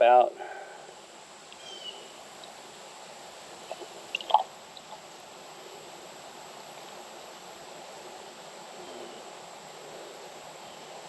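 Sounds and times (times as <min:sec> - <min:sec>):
water trickling into pump: 0:03.6 - 0:05.1.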